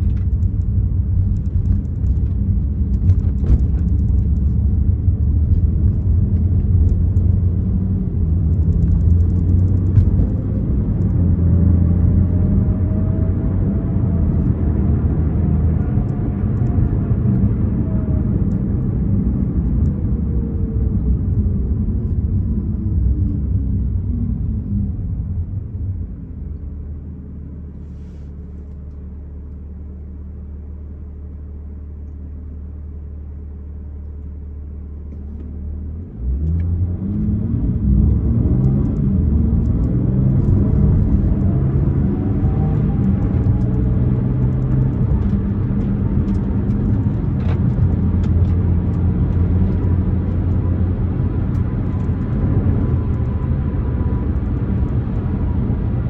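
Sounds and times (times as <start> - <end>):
car engine revving: 36.0 - 56.0.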